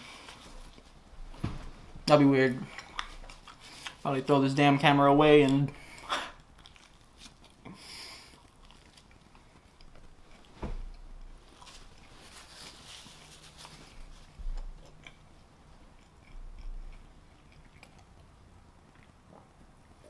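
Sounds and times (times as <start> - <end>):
person chewing food: 0.0 - 1.2, 2.6 - 4.1, 5.4 - 20.0
soft low thumps: 1.1 - 2.1.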